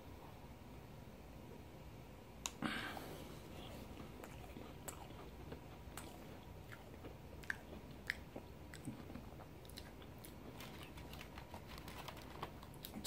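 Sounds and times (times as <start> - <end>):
faint chewing of cookie: 2.5 - 13.0.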